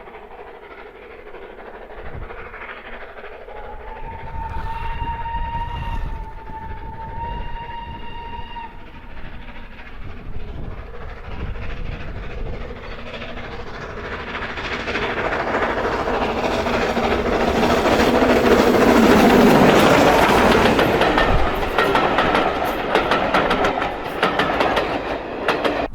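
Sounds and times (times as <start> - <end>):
train running noise: 0.0 - 25.9
steam locomotive whistle: 3.5 - 9.3.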